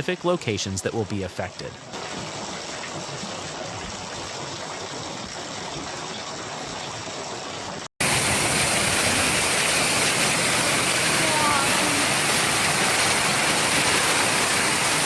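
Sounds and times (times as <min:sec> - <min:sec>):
heavy rain pouring: 0:08.0 - 0:15.0.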